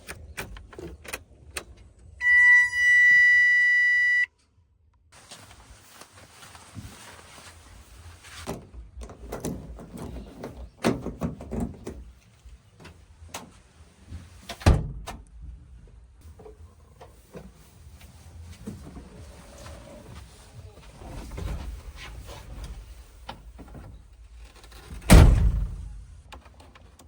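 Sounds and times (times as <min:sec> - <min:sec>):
backhoe engine rumble: 0:00.0 - 0:04.2, 0:06.7 - 0:14.5, 0:15.2 - 0:27.0
backhoe clanks and thuds: 0:08.5 - 0:12.1, 0:20.9 - 0:26.7.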